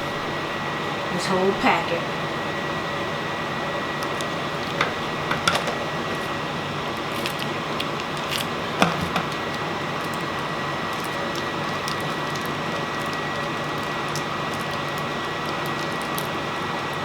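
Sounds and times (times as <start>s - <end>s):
soft squishes of sauce squeezed: 6.1s - 8.8s.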